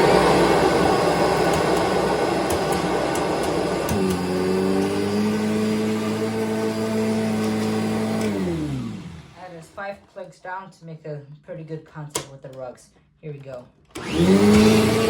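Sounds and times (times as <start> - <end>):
vacuum cleaner running: 0.0 - 9.8, 14.0 - 15.0.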